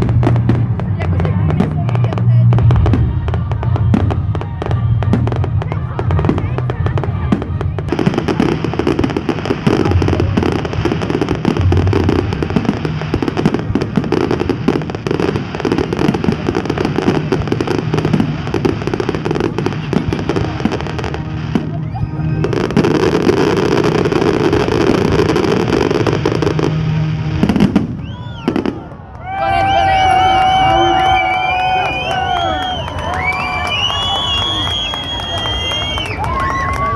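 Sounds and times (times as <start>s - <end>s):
fireworks bangs: 0.0s - 36.9s
fireworks crackling and popping: 0.0s - 36.9s.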